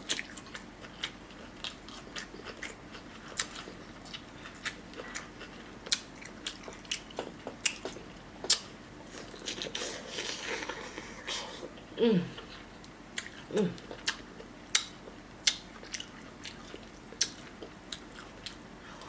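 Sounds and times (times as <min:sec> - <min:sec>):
close chewing: 0:00.1 - 0:11.1.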